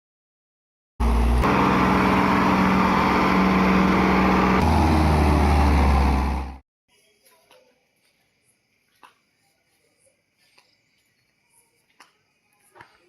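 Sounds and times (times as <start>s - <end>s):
heavy machinery diesel engine running: 1.0s - 6.6s.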